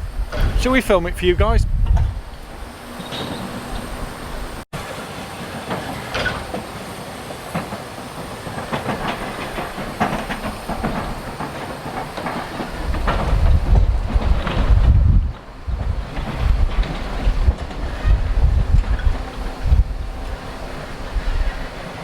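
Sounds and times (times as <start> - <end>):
steam locomotive clanking: 0.0 - 22.0.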